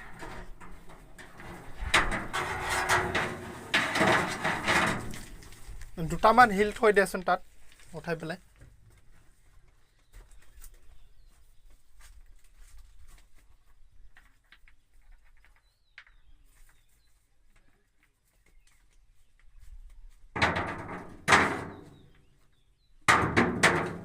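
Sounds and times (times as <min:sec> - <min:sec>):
faint knocks and scrapes: 0:00.0 - 0:06.8, 0:07.4 - 0:22.6.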